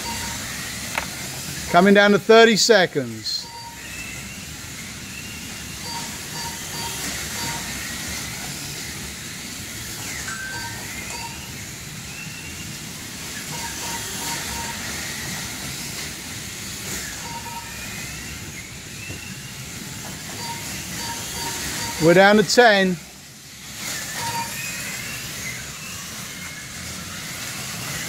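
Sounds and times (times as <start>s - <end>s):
short electronic beeps: 0.0s - 0.4s, 3.4s - 4.2s, 5.8s - 7.8s, 10.3s - 11.6s, 13.5s - 14.9s, 17.2s - 18.2s, 20.3s - 22.8s, 24.1s - 24.8s
slot car motors whining: 0.0s - 28.0s.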